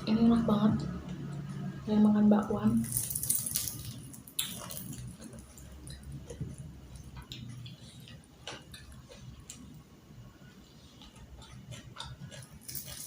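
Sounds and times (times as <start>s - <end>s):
chewing crispy food crunches: 2.8s - 6.4s, 11.0s - 13.0s.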